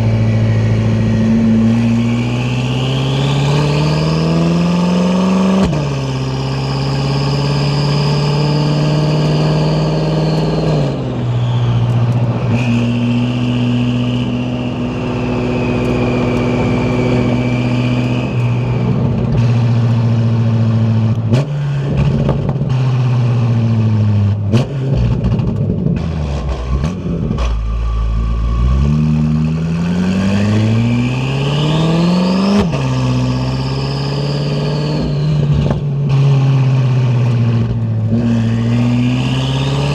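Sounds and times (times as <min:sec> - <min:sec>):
car engine accelerating: 0:00.0 - 0:39.9
turbo whistle: 0:01.3 - 0:04.5, 0:06.3 - 0:19.0, 0:27.2 - 0:32.4.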